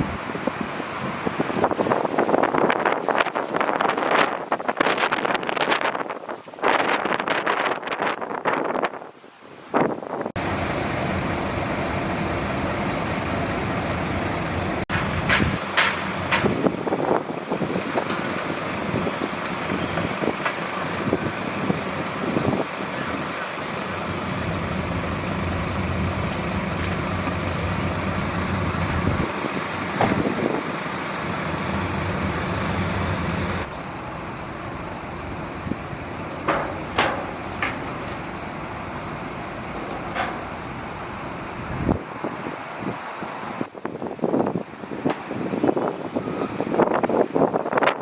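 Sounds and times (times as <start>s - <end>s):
vehicle engine idling: 10.4s - 42.2s.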